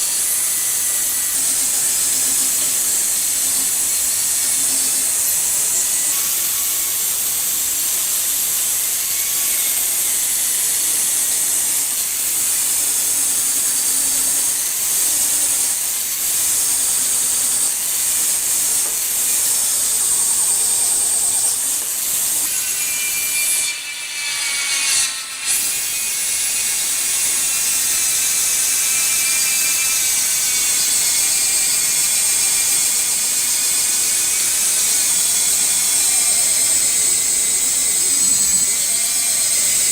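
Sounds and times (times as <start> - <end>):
power tool grinding: 0.0 - 7.6, 8.8 - 39.9.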